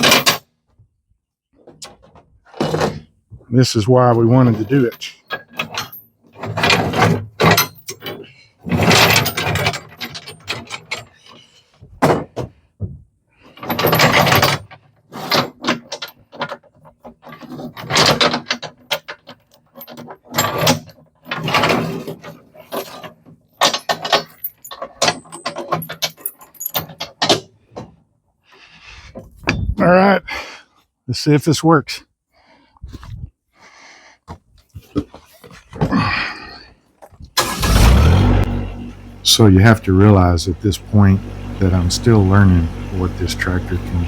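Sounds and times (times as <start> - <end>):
metal hardware clanking: 0.0 - 0.4, 4.2 - 11.2, 37.4 - 44.0.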